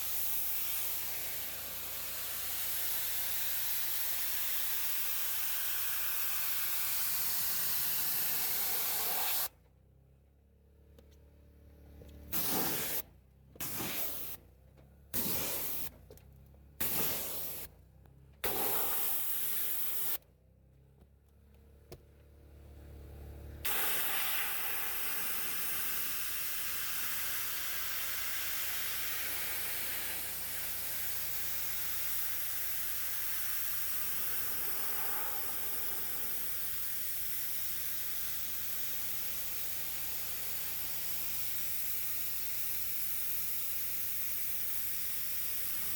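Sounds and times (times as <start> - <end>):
pressure washer spraying: 0.0 - 9.5, 12.3 - 13.0, 13.6 - 14.4, 15.2 - 16.0, 16.8 - 17.7, 18.4 - 20.2, 23.6 - 45.9.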